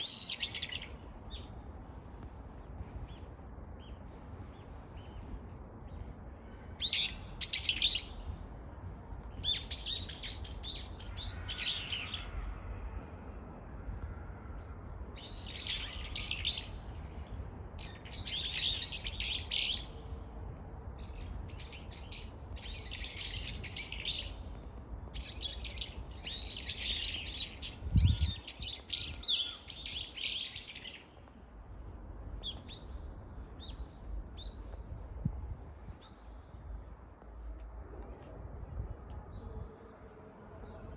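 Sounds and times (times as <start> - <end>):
steady low rumble: 0.0 - 15.9, 31.1 - 40.9
songbirds chirping and singing: 9.4 - 12.5, 25.2 - 31.2.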